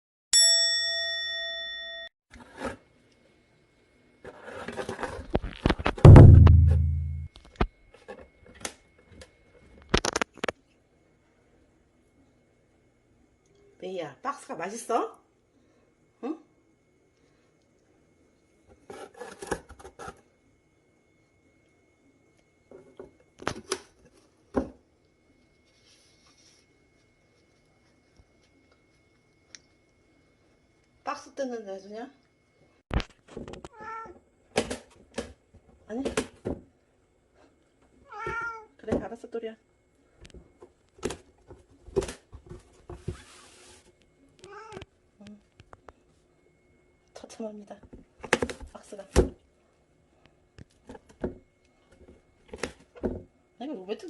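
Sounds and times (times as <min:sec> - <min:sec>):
bright chime: 0:00.4 - 0:02.1
loud low buzz: 0:06.0 - 0:07.3
cat tearing cardboard box: 0:18.9 - 0:20.2.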